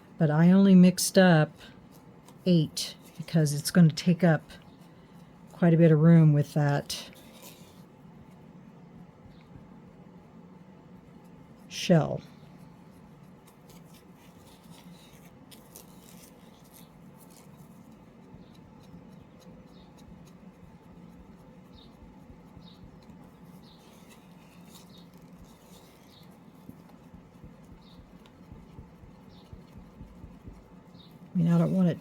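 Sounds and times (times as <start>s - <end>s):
stir stick scraping in plastic cup: 12.9s - 32.0s.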